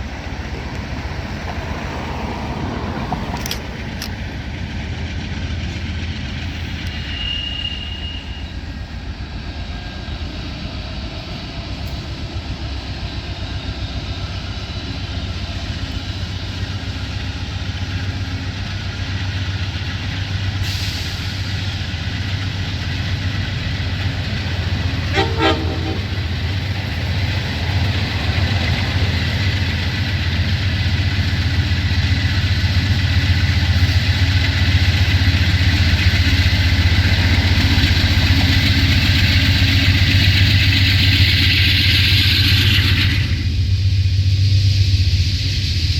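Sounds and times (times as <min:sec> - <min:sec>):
train running: 0:00.0 - 0:45.9
train horn toot: 0:06.8 - 0:08.6, 0:25.0 - 0:26.6.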